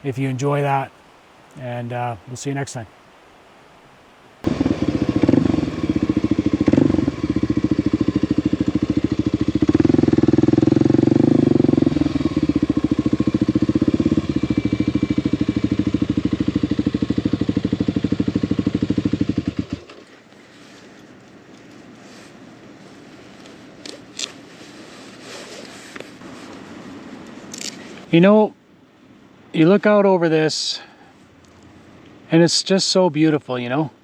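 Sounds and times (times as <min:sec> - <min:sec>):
motorcycle engine running: 0:04.5 - 0:20.0.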